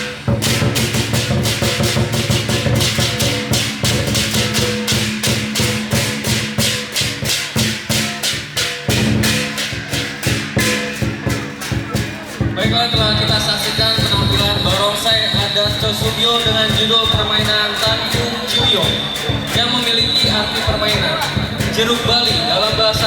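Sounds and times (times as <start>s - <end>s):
cymbals clashing: 0.0s - 23.0s
drum beating: 0.0s - 23.0s.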